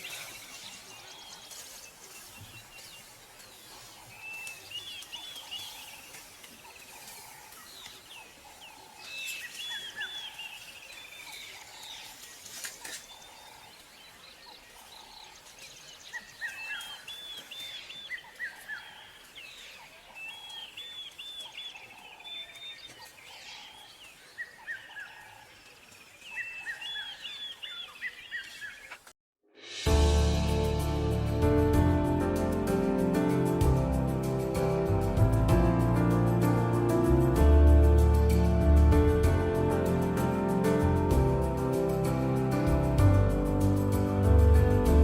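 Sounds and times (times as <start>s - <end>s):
birds chirping: 0.0s - 29.1s.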